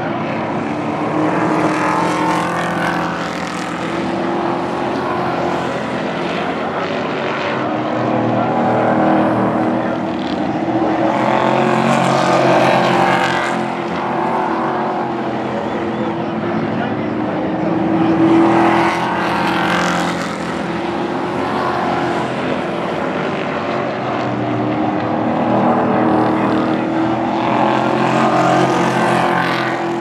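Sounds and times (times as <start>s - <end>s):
racing truck engines: 0.0s - 30.0s.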